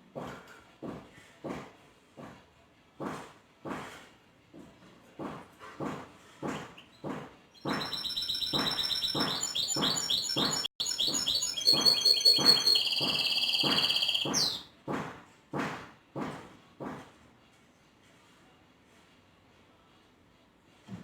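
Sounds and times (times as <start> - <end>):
finch singing: 7.6 - 14.6
short noisy repeating sound: 7.6 - 14.6.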